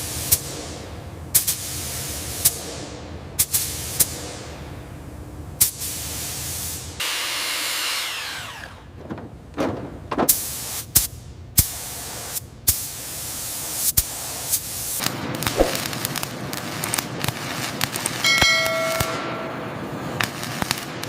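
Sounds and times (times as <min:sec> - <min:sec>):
steady hiss: 0:00.0 - 0:07.0, 0:10.3 - 0:21.0
ringing metal clang: 0:18.2 - 0:20.2
sharp metallic knocks and clicks: 0:18.3 - 0:19.4.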